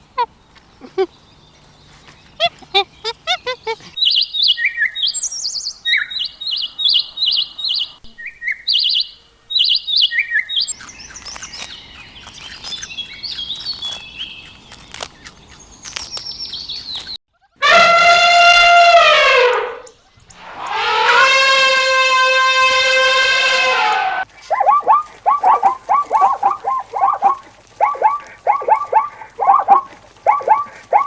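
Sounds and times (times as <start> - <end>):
small birds chirping: 0.0 - 17.2, 24.4 - 31.0
rooster crowing: 17.6 - 24.2.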